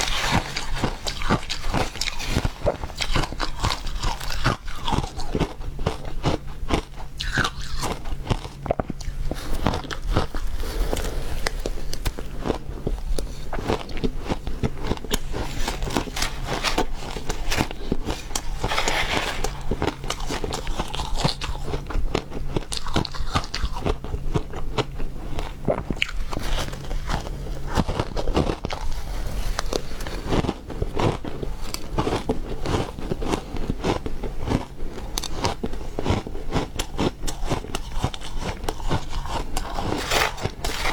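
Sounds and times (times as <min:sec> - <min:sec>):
ice being chewed: 0:00.0 - 0:40.9.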